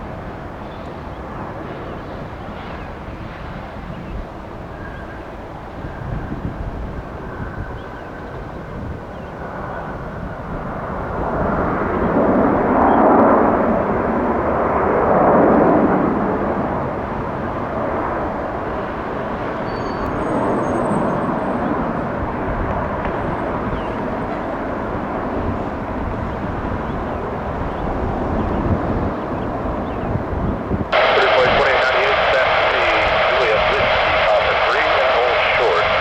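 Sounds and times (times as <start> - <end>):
jet airliner landing: 0.0 - 36.0
faint high whine: 31.0 - 36.0.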